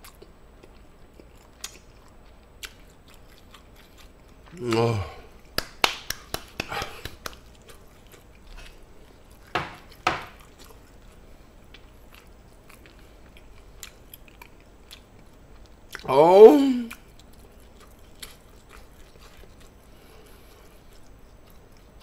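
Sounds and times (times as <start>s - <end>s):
man chewing: 0.0s - 16.1s, 16.8s - 22.0s
mouth smacks: 4.5s - 7.8s.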